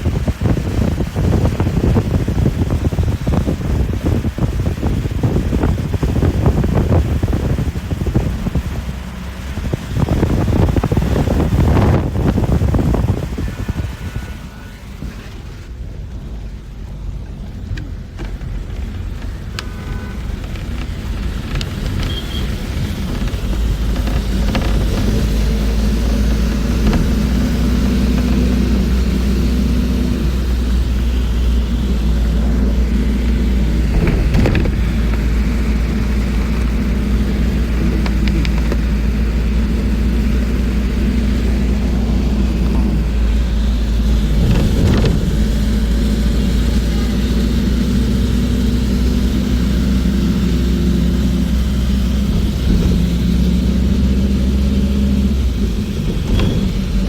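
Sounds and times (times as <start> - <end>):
bus engine and road rumble: 0.0 - 57.0
rattles and knocks: 17.3 - 46.7.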